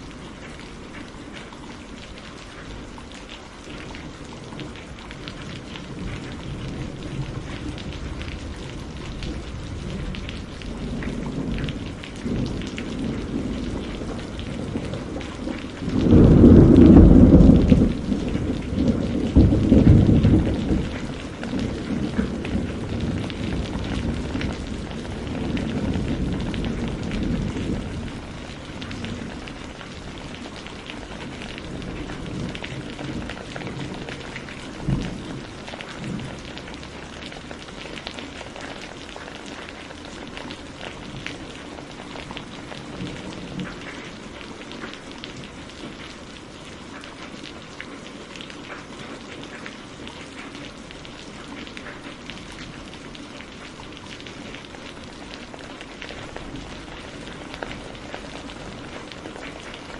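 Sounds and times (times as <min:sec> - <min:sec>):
heavy rain falling: 0:00.0 - 0:59.9
rolling thunder rumble: 0:04.6 - 0:38.8
thunder clap: 0:06.0 - 0:37.2.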